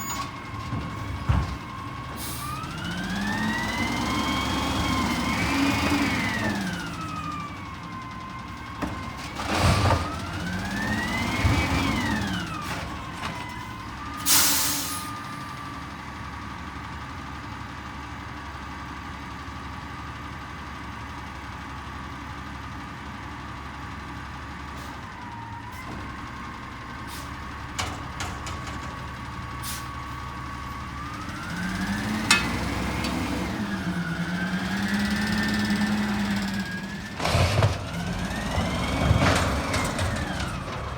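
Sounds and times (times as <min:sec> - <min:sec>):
garbage truck engine revving: 0:00.0 - 0:15.0, 0:24.6 - 0:40.9.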